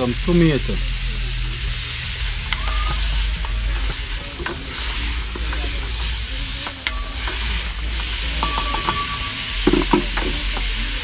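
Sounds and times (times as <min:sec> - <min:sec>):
vegetables sizzling in a pot: 0:00.0 - 0:11.0
spoon stirring against pot: 0:02.3 - 0:11.0.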